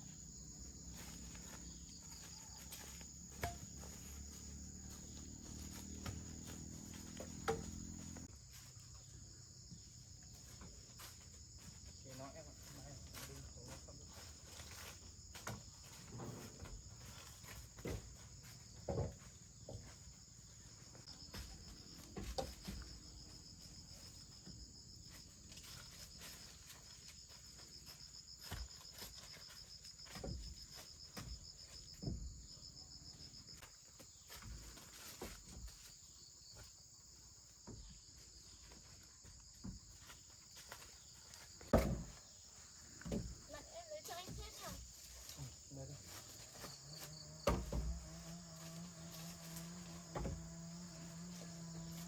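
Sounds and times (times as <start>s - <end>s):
insects chirring: 0.0s - 52.0s
soft knocks and thumps: 15.3s - 20.0s, 41.6s - 42.2s, 47.4s - 48.1s.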